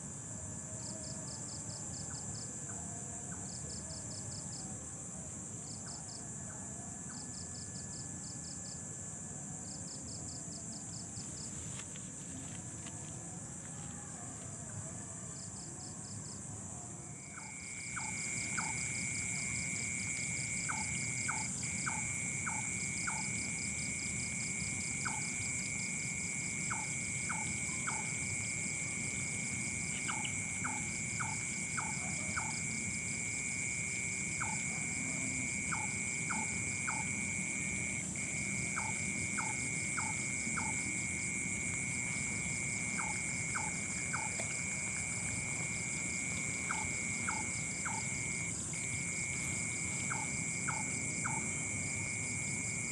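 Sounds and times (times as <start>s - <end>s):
crickets trilling: 0.0s - 52.9s.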